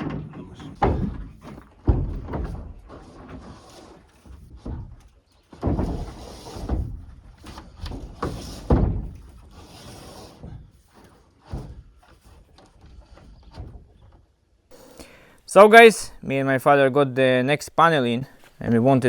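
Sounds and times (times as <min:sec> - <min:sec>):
knocks and thuds of metal panel: 0:00.0 - 0:03.5, 0:04.2 - 0:09.5.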